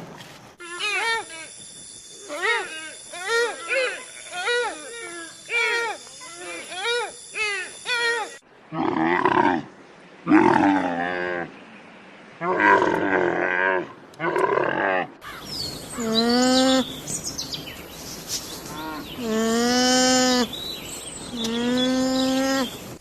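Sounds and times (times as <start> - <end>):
cow mooing: 18.8 - 20.5.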